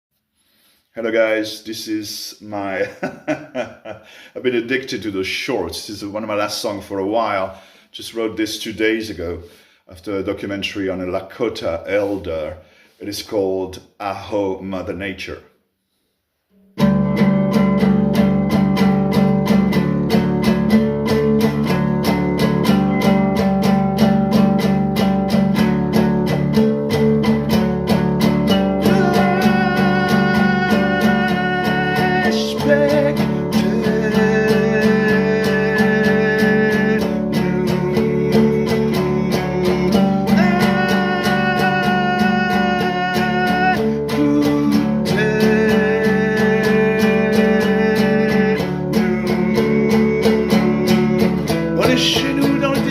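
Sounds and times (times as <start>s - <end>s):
acoustic guitar strumming: 16.5s - 52.9s
person singing: 27.9s - 52.9s.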